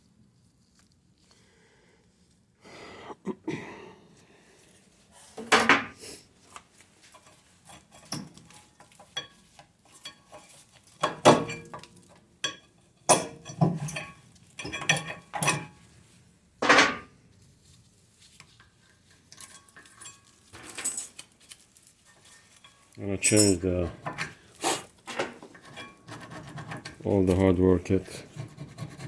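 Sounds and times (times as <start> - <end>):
metal brake parts clinking: 23.2 - 23.7.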